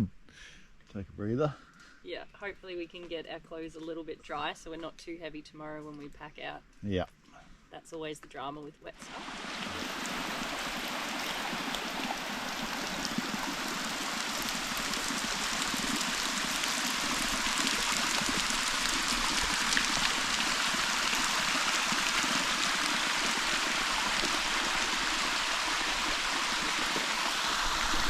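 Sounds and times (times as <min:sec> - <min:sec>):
creek water rushing: 0:09.0 - 0:28.0.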